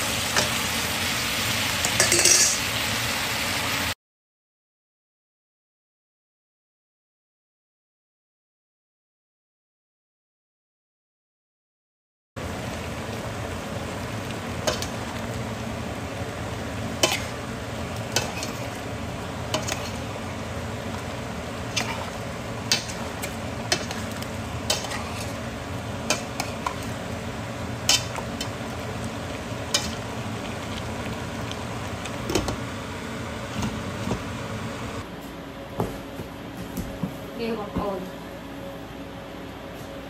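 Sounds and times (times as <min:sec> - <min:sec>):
food sizzling in a pot: 0:00.0 - 0:04.0, 0:12.4 - 0:35.0.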